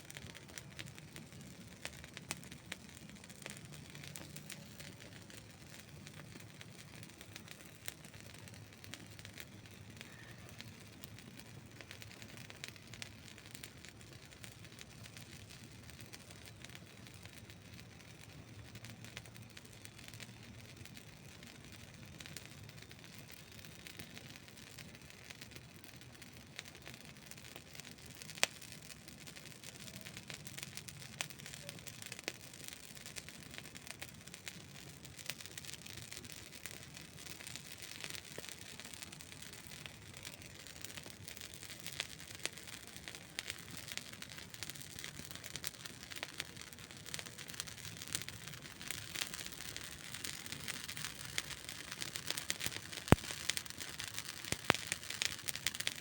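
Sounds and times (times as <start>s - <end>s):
campfire crackling and popping: 0.0s - 56.0s
campfire hiss: 0.0s - 56.0s.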